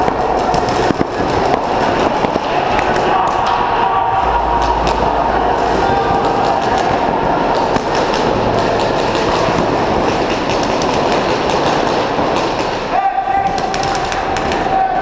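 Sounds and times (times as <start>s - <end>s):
steady noisy background: 0.0s - 15.0s
paintball markers firing: 7.5s - 14.7s.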